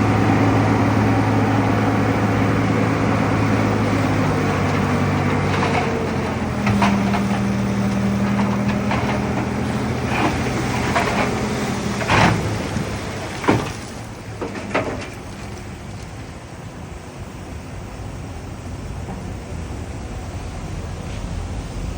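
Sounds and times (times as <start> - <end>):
heavy diesel engine running: 0.0 - 21.9
metallic clanks and knocks: 5.3 - 12.6, 14.4 - 15.3.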